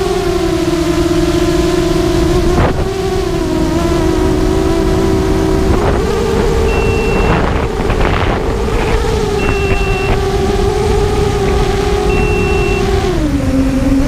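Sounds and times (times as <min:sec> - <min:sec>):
quadcopter motors whining: 0:00.0 - 0:14.0
wind buffeting microphone: 0:00.1 - 0:14.0
high beep: 0:06.7 - 0:07.4, 0:09.4 - 0:10.2, 0:12.1 - 0:13.0.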